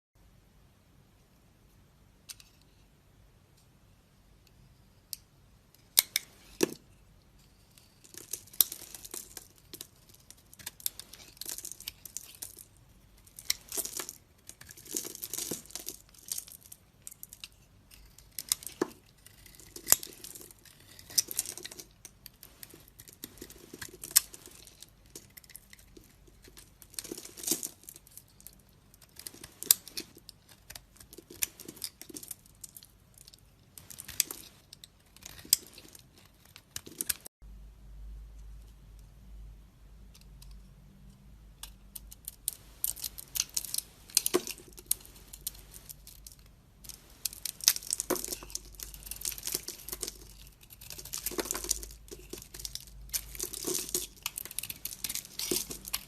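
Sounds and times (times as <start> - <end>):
blade scraping soap: 17.5 - 21.7.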